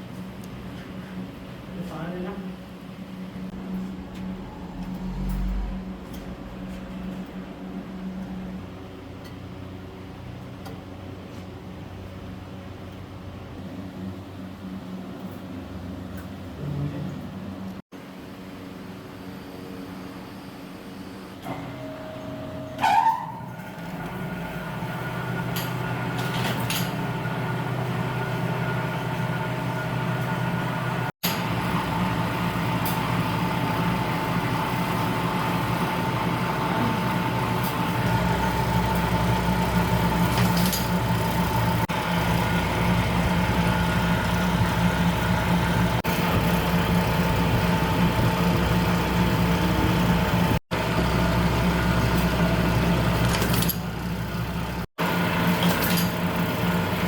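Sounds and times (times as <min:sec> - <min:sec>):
machine motor hum with whine: 0:01.2 - 0:09.9, 0:23.5 - 0:57.0.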